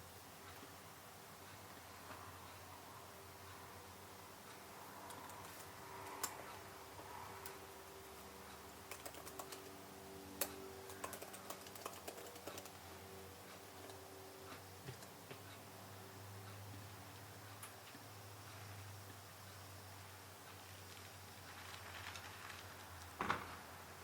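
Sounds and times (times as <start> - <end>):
faint steady hum: 0.0 - 24.0
computer keyboard key clicks: 8.9 - 9.7, 10.9 - 12.8.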